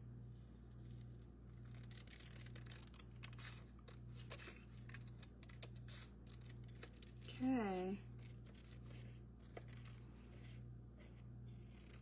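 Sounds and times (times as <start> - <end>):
low electrical hum: 0.0 - 12.0
paper rustling and cutting: 1.5 - 7.2.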